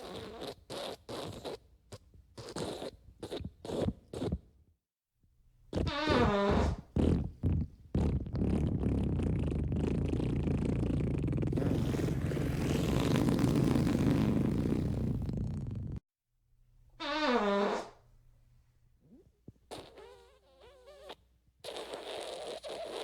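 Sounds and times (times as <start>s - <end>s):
fart sound effects: 5.7s - 16.0s, 17.0s - 18.0s, 19.7s - 23.0s.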